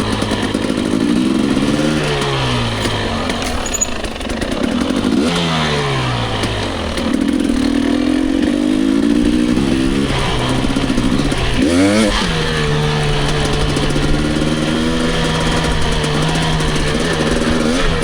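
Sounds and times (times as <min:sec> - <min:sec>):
rattling: 0:00.0 - 0:11.7
dirt bike engine: 0:00.0 - 0:18.0.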